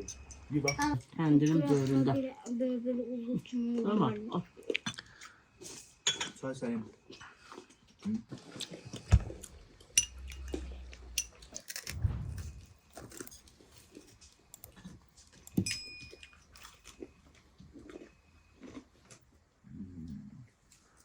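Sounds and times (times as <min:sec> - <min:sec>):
glassy clink: 0:00.0 - 0:01.7, 0:09.9 - 0:11.4, 0:15.6 - 0:16.5
tableware clicks and knocks: 0:00.0 - 0:02.0, 0:06.0 - 0:06.4, 0:09.8 - 0:12.0, 0:15.5 - 0:16.5.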